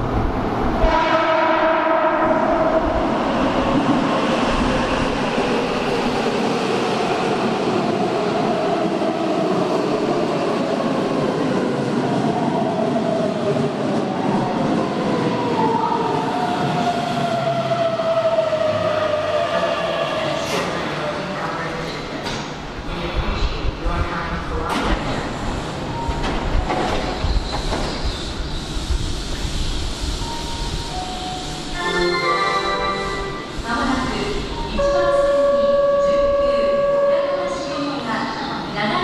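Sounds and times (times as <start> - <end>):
train horn blast: 0.8 - 2.5, 34.8 - 37.6
train brakes whining: 25.4 - 37.8.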